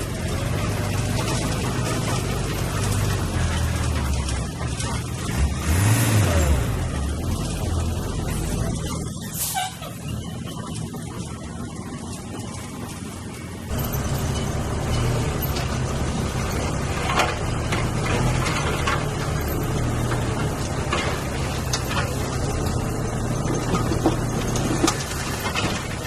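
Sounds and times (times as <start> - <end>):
diesel machinery engine hum: 0.0 - 26.0
metallic clanks: 13.7 - 26.0.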